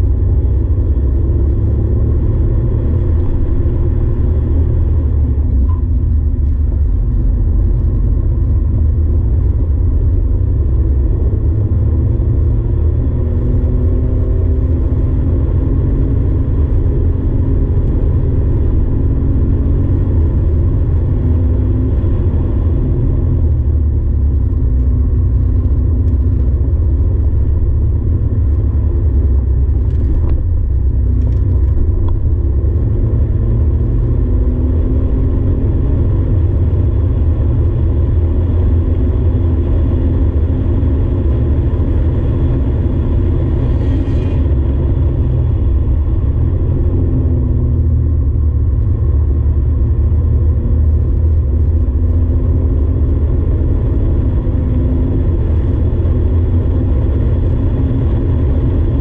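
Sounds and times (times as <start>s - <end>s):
car engine rumbling: 0.0s - 59.0s.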